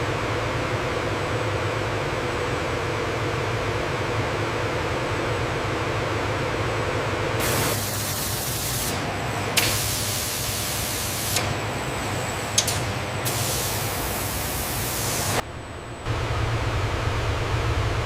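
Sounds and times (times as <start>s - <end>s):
low machine hum: 10.4s - 18.0s
loud hiss: 13.2s - 15.4s.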